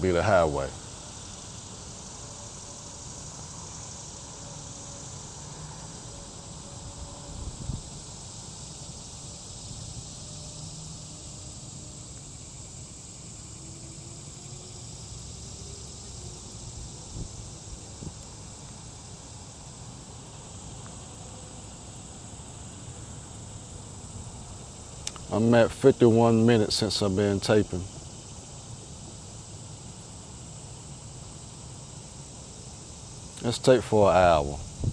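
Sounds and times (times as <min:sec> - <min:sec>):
insect chorus: 0:00.0 - 0:34.9
distant traffic rumble: 0:22.4 - 0:28.1, 0:33.0 - 0:34.9.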